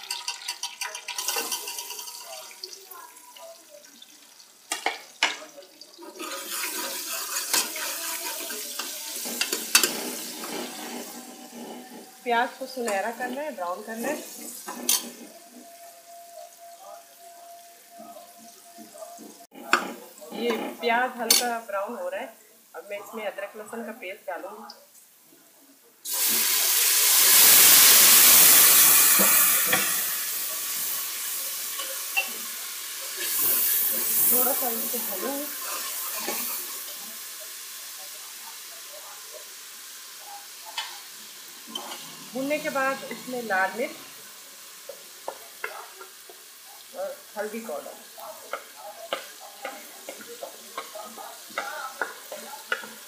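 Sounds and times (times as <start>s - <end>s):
loud sizzle in hot oil: 0.0s - 22.1s, 26.0s - 53.0s
utensil tapping and scraping metal: 48.5s - 53.0s.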